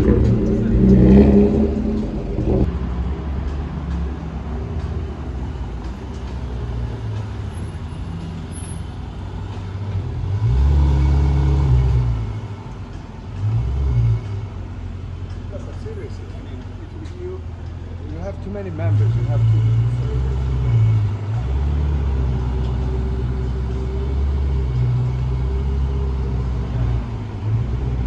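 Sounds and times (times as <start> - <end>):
vehicle passing: 0.0 - 14.6
traffic engines running low: 0.0 - 28.0.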